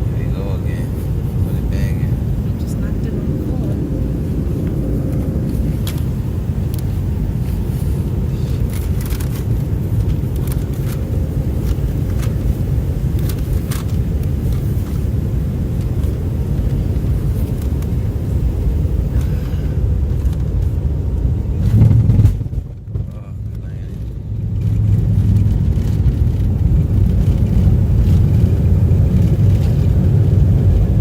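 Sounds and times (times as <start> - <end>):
airliner cabin rumble: 0.0 - 31.0
low thump: 21.7 - 23.2.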